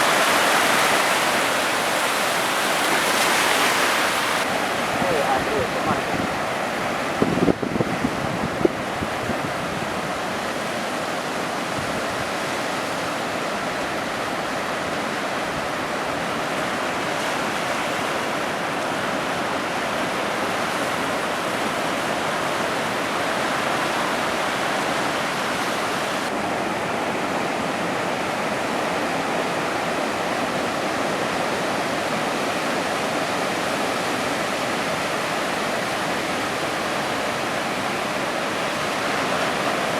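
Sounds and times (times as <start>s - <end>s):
ocean surf hissing: 0.0s - 10.0s.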